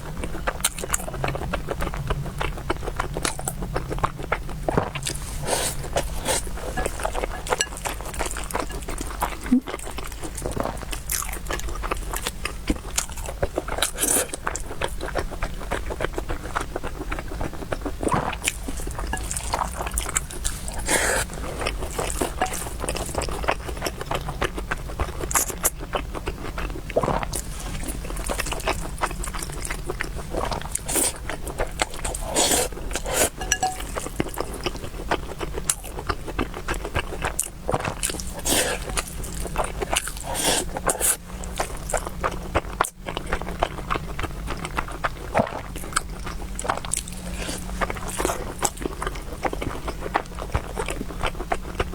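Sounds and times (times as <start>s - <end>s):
chewing and mouth sounds: 0.0s - 51.9s
smacks or slurps: 4.8s - 11.2s, 18.0s - 23.6s, 27.0s - 34.8s, 37.3s - 42.1s.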